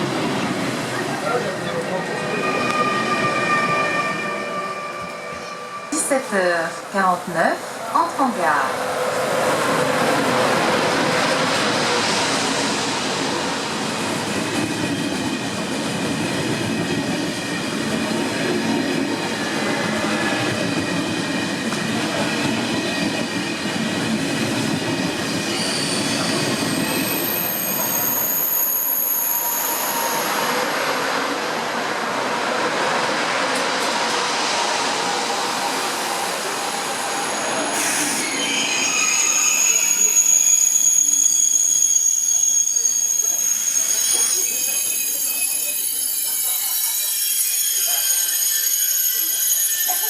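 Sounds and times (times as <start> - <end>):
high-pitched brake squeals: 1.6 - 6.0, 25.4 - 30.9, 36.7 - 50.0.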